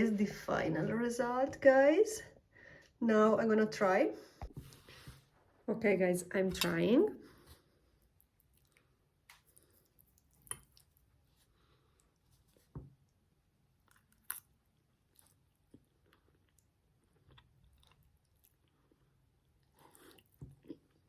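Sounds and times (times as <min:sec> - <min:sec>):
person chewing: 0:08.0 - 0:12.7, 0:13.7 - 0:21.0.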